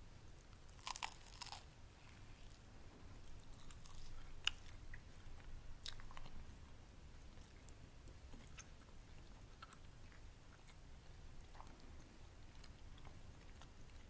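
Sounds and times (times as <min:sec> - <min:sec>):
crunchy chewing: 0:00.4 - 0:06.4.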